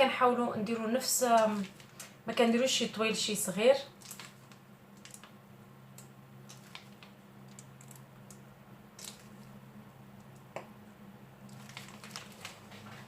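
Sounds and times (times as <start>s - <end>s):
low steady hum: 0.0s - 13.0s
dough squishing from piping bag: 3.9s - 5.4s, 6.0s - 8.3s, 8.9s - 9.6s, 11.4s - 13.0s.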